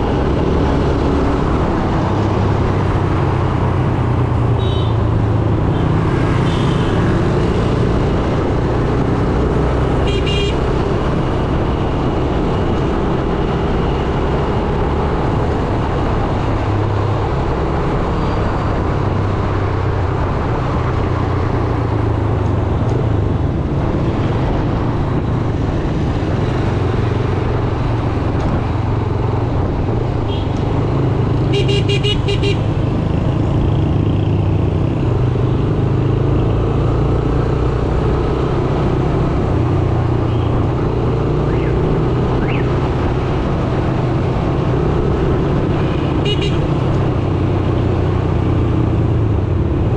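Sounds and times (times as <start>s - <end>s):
road noise: 0.0s - 49.9s
horn honking: 4.5s - 5.1s, 5.8s - 7.1s, 10.0s - 10.7s, 31.4s - 32.7s, 46.2s - 46.7s.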